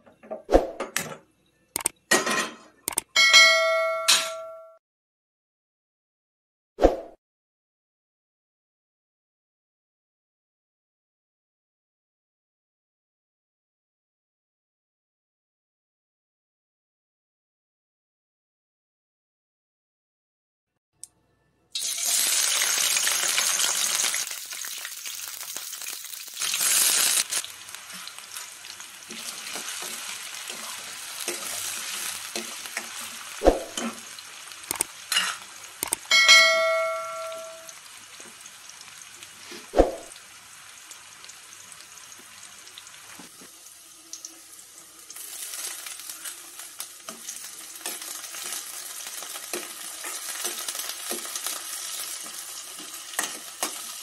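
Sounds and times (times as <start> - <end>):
ringing metallic clang: 3.2 - 4.8, 36.1 - 37.7
onions sizzling in hot oil: 21.8 - 36.1, 37.2 - 54.0.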